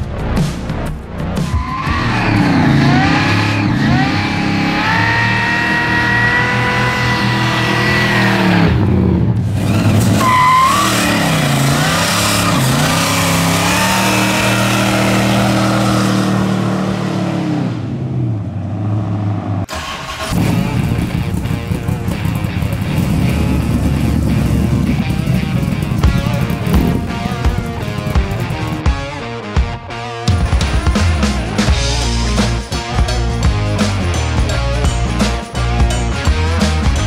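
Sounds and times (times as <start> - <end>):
car engine revving: 1.4 - 28.9
tyres squealing: 1.5 - 8.6, 9.6 - 16.4.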